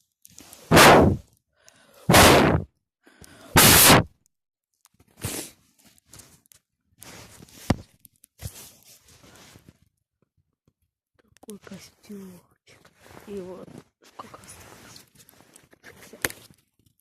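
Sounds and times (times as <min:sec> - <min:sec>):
rustling and scraping at microphone: 0:05.0 - 0:10.0, 0:11.6 - 0:16.9.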